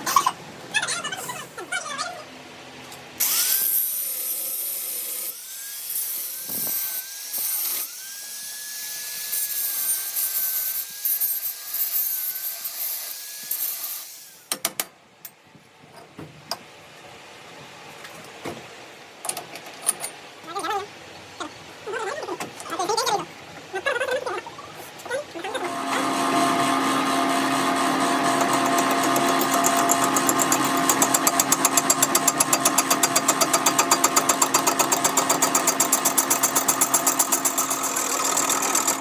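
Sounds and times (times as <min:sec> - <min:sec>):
power tool grinding metal: 0:25.4 - 0:39.0.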